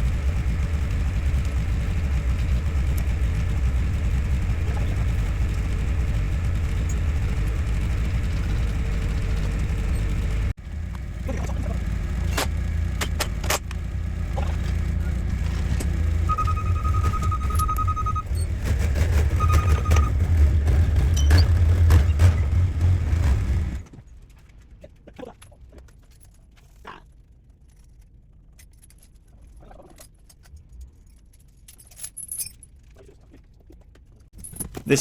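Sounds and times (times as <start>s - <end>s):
loud low mechanical rumble: 0.0s - 23.9s
pulsing high-pitched beep: 16.3s - 18.4s, 19.4s - 20.1s.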